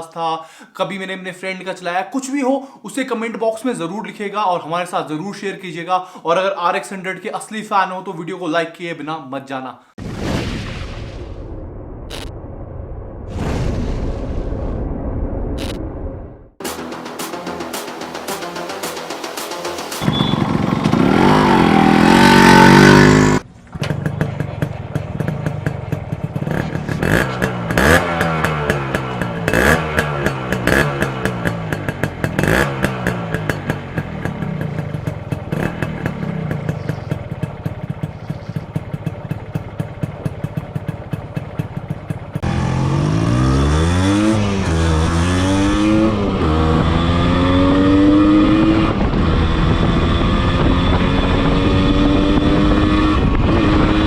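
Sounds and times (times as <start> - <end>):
motorcycle engine revving: 19.0 - 54.0.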